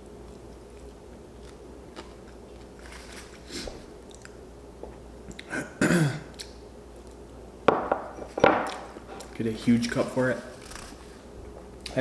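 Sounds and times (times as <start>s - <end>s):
person chewing food: 0.2s - 5.5s.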